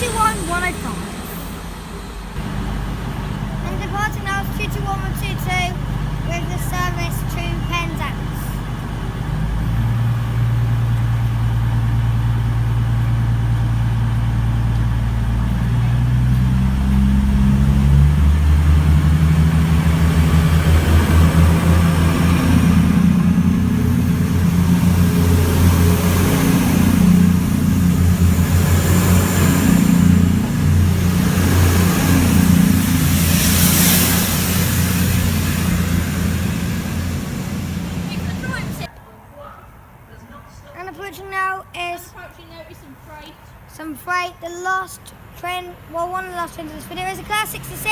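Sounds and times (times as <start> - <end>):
train rushing noise: 0.0 - 38.9, 45.5 - 47.9
diesel train engines pulsing: 0.0 - 39.0, 40.7 - 47.9.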